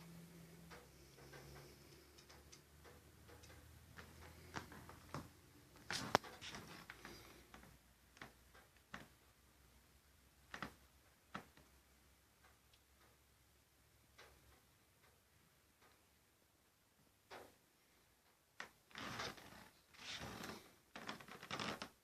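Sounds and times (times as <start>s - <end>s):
light clicks and taps: 0.0s - 9.4s, 10.4s - 13.3s, 14.1s - 16.1s, 17.2s - 17.6s.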